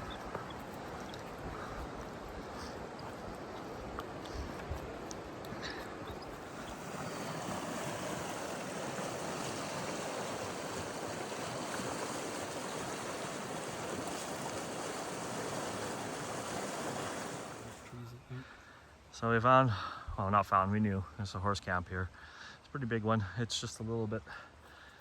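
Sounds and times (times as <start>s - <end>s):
creek water rushing: 0.0s - 18.8s.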